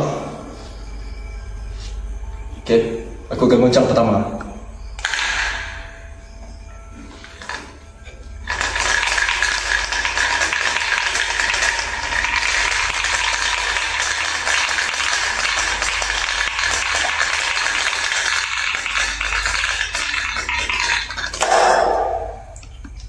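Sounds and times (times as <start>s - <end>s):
dice rattling in plastic cup: 8.5s - 21.4s.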